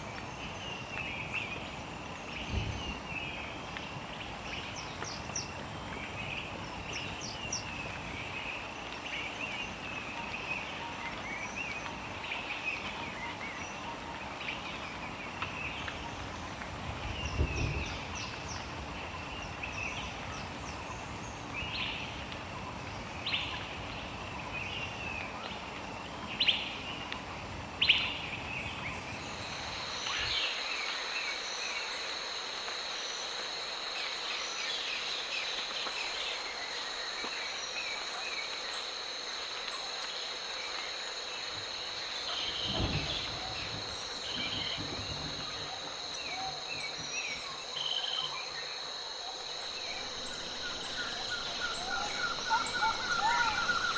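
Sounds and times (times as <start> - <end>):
high-pitched insect drone: 29.2 - 53.9
small birds chirping: 34.8 - 53.9.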